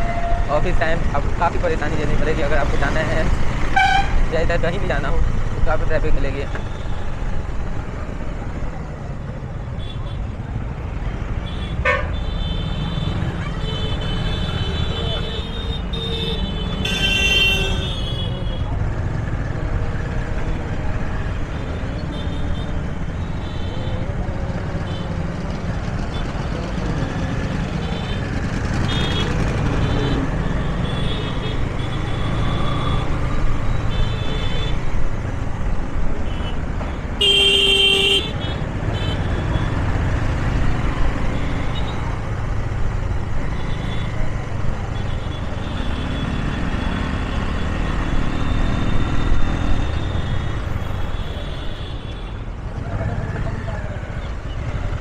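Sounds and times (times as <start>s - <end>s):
motorcycle and traffic rumble: 0.0s - 55.0s
loud horn blast: 11.8s - 12.2s.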